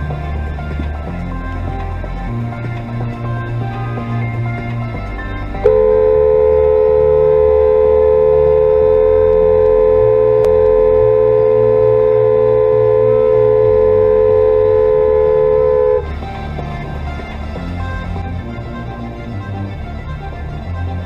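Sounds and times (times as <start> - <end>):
music with slow beat: 0.0 - 21.0
steady single-pitched tone: 4.2 - 19.7.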